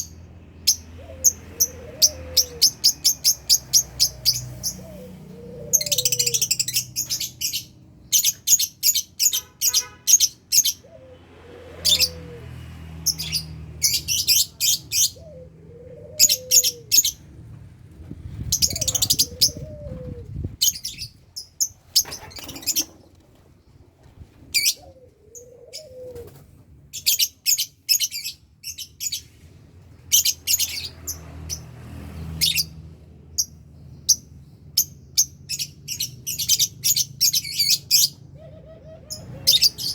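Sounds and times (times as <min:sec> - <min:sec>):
lovebirds chirping: 0:00.0 - 0:11.0, 0:18.4 - 0:23.1, 0:33.4 - 0:39.9
low arched bird call: 0:04.0 - 0:07.2.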